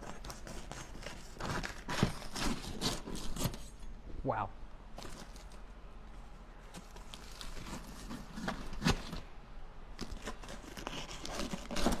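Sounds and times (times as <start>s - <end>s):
crunching while eating pizza: 9.9s - 12.0s.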